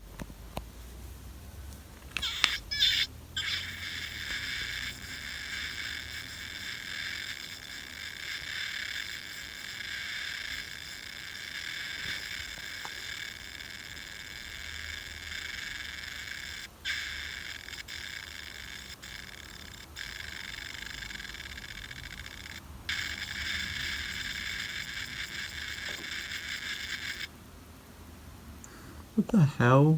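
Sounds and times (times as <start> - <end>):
buzzy electronic drone from toy: 2.2 - 27.3.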